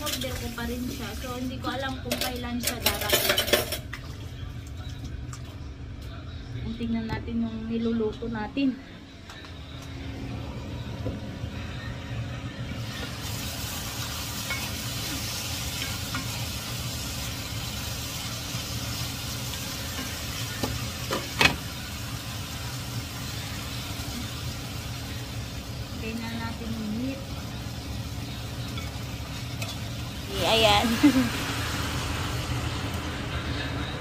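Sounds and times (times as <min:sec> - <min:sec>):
food sizzling in a pan: 0:00.0 - 0:03.6, 0:12.8 - 0:34.0
utensil clacking on pan: 0:02.1 - 0:03.9
low hum: 0:04.3 - 0:13.2.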